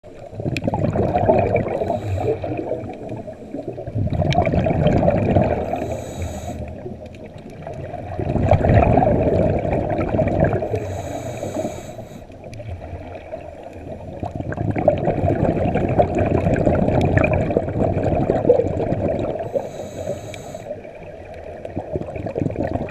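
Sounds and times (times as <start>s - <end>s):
diver exhaling bubbles: 0.3s - 12.0s, 12.6s - 20.9s, 21.5s - 22.9s
regulator air hiss: 1.8s - 2.6s, 5.6s - 6.9s, 10.7s - 12.4s, 19.4s - 20.9s.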